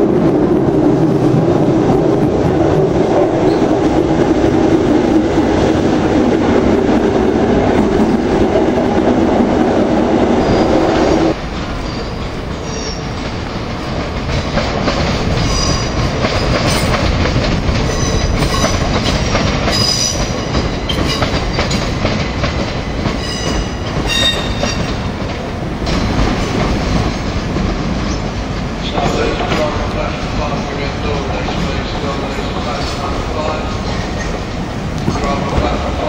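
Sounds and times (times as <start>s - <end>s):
train carriage interior hum: 0.0s - 36.0s
train wheels clattering on rails: 11.3s - 36.0s
high-pitched wheel squeal: 23.2s - 24.8s.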